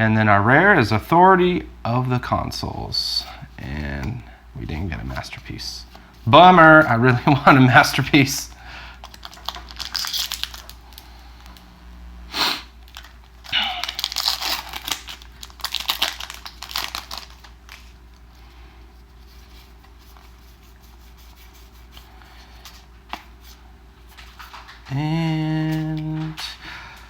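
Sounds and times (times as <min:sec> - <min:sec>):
foil wrapper tearing and crinkling: 0:08.9 - 0:11.6, 0:12.7 - 0:18.0.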